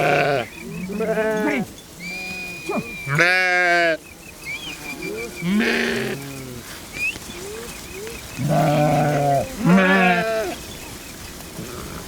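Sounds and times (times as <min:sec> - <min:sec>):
sheep bleating: 0:00.0 - 0:04.0, 0:05.0 - 0:06.3, 0:08.4 - 0:10.6.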